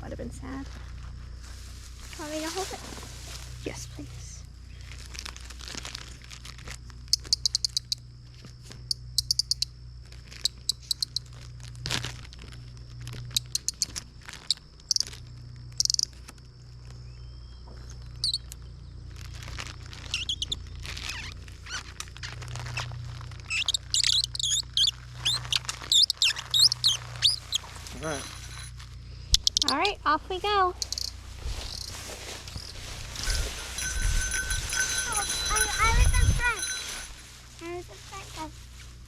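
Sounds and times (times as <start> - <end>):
faint high insect drone: 0.0 - 39.0
high bird-like chirps: 18.2 - 18.6, 20.1 - 21.8, 23.5 - 28.6, 29.3 - 29.9, 30.8 - 31.9.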